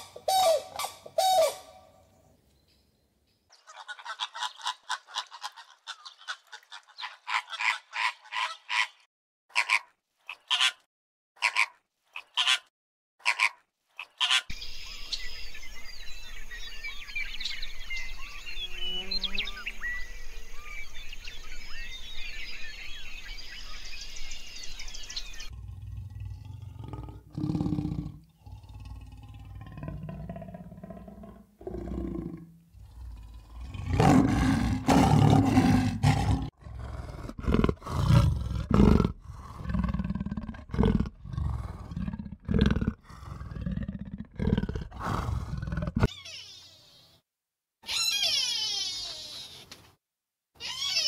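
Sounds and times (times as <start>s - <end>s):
small birds twittering: 14.0s - 25.8s
big cat growling and roaring: 25.5s - 46.1s.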